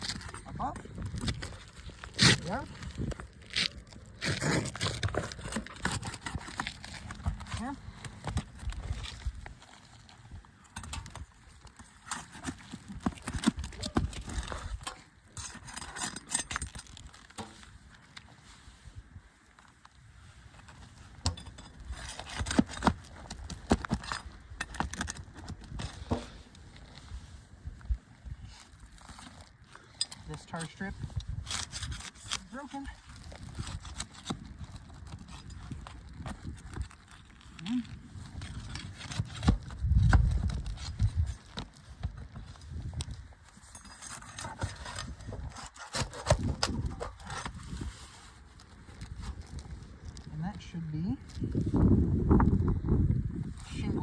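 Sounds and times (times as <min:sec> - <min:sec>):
shingles being pried apart: 0:00.0 - 0:18.2, 0:21.1 - 0:26.4, 0:31.2 - 0:47.8.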